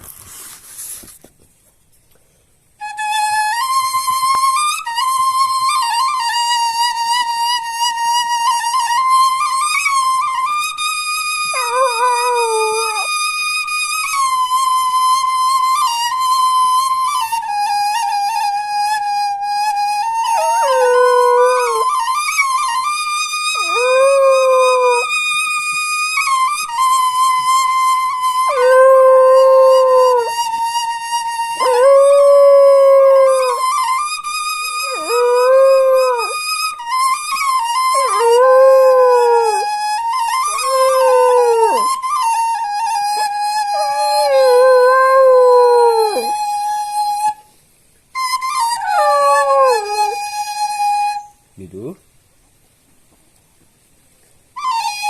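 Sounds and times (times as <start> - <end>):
bamboo flute slow melody: 2.8 - 52.0, 54.5 - 55.0
dog howling: 11.5 - 13.1, 20.0 - 22.8, 23.5 - 25.1, 28.4 - 30.4, 31.6 - 33.9, 34.7 - 36.4, 37.8 - 42.0, 42.7 - 46.4, 48.6 - 50.4.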